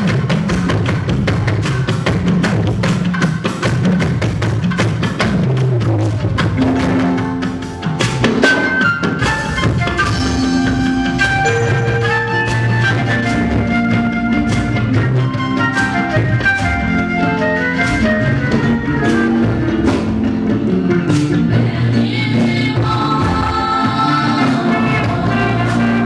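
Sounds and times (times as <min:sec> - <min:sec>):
busy drum beat: 0:00.0 - 0:26.0
held organ-like keyboard notes: 0:06.6 - 0:26.0.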